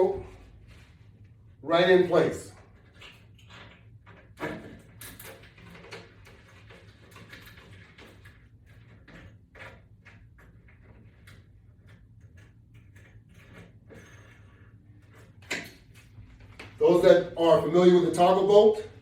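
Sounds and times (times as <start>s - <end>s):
hardware clicks and scrapes: 2.6s - 16.8s.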